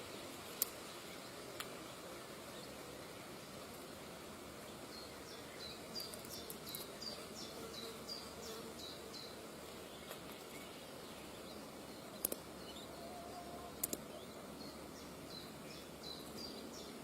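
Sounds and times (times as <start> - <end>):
outdoor background noise: 0.0 - 17.0
sharp clicks: 12.2 - 12.4, 13.8 - 14.0.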